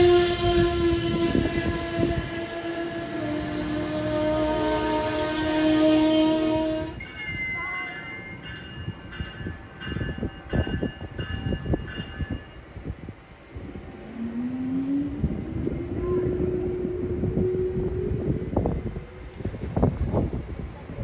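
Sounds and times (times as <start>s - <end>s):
train horn chord: 0.0s - 7.0s, 15.8s - 18.2s
train wheels rumbling on rails: 0.0s - 21.0s.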